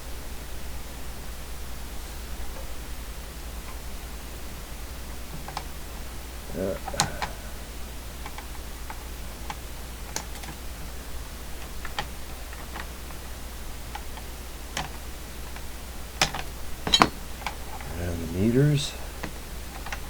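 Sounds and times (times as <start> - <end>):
steady low hum: 0.0 - 20.0
hand tools clicking: 6.6 - 7.4, 11.6 - 13.2, 13.9 - 20.0.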